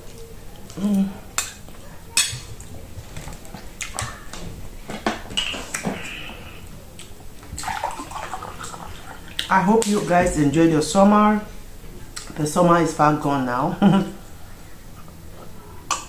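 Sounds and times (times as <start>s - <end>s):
chewing and mouth sounds: 3.6s - 4.4s.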